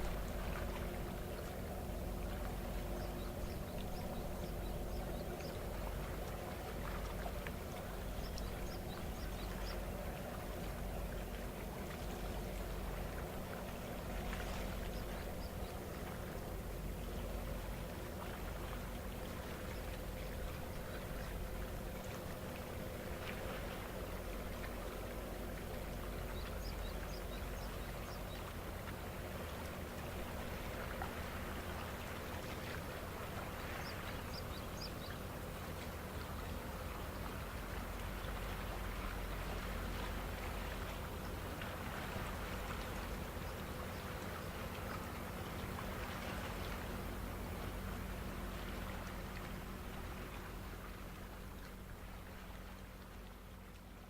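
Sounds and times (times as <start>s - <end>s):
water splashing and rushing: 0.0s - 3.0s
boat engine droning: 0.0s - 54.0s.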